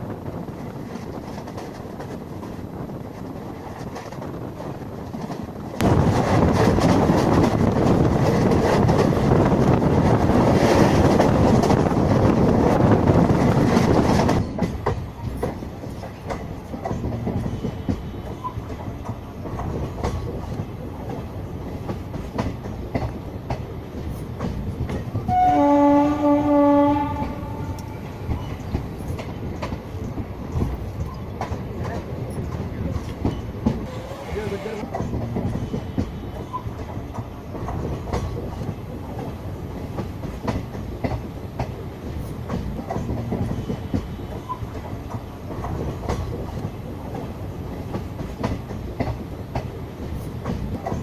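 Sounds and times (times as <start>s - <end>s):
train rumbling on track: 0.0s - 51.0s
locomotive horn: 25.3s - 27.9s, 33.8s - 34.8s.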